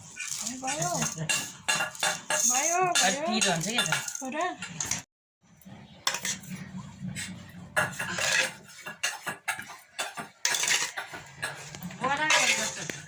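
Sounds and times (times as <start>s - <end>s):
spoon clinking against bowl: 0.2s - 4.3s.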